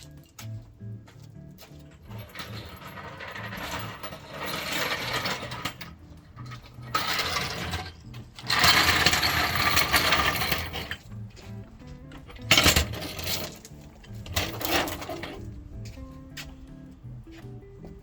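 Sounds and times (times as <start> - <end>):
background music: 0.0 - 18.0
metal jack rattling: 1.8 - 11.1, 12.0 - 15.5.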